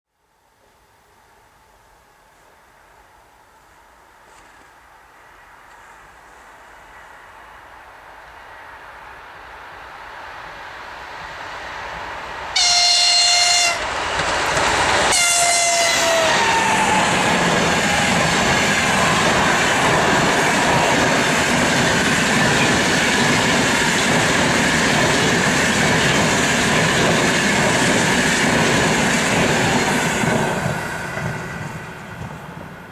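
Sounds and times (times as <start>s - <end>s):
train coaches rushing past: 5.0s - 32.9s
locomotive horn blasts: 12.6s - 13.8s, 15.1s - 17.0s.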